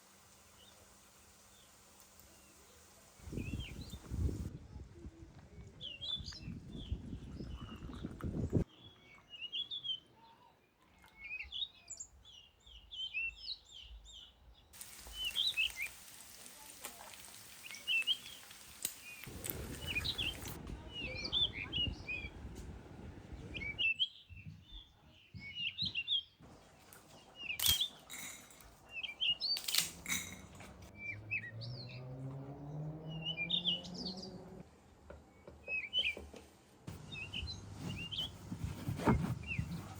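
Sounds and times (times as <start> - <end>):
small birds chirping: 0.4 - 34.6, 35.2 - 39.9
hiss: 14.8 - 20.6.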